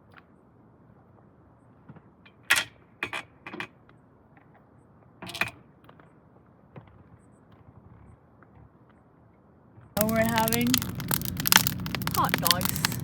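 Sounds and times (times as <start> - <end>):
sharp clicks and clatters: 10.0 - 13.0.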